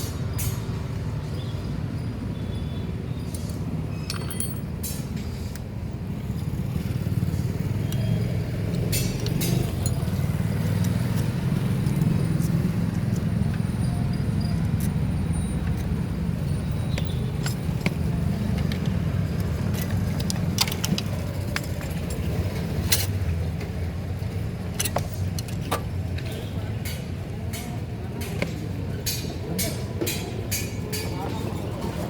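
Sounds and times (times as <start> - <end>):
vehicle engine rumbling: 0.0 - 32.0
metallic clinks of tools: 3.4 - 5.1.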